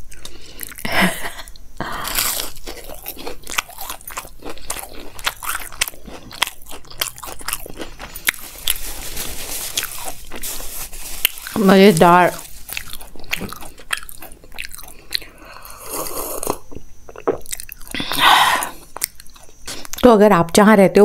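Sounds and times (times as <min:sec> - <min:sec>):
crunchy chewing: 0:00.0 - 0:00.9, 0:01.5 - 0:20.1
crunchy bite: 0:01.9 - 0:10.5, 0:12.4 - 0:20.0.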